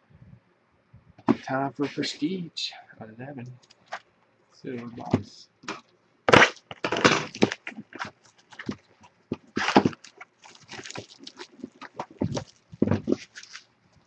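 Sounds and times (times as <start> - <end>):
plastic wrap and foil crinkling: 5.7 - 13.7.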